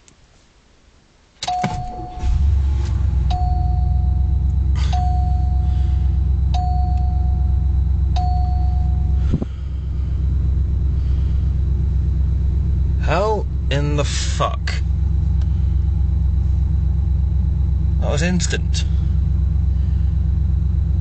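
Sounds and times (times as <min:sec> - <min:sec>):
dashboard warning chime: 0:01.4 - 0:02.5, 0:03.1 - 0:09.2
car engine starting and running: 0:01.4 - 0:21.0.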